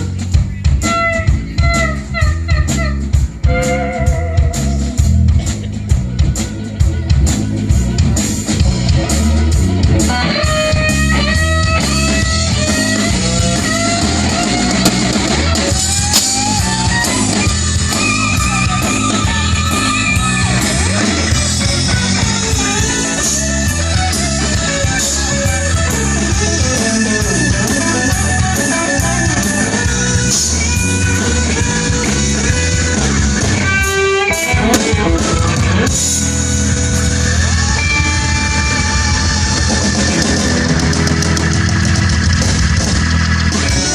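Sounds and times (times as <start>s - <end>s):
drum kit beat: 0.0s - 43.9s
guitar melody: 0.0s - 43.9s.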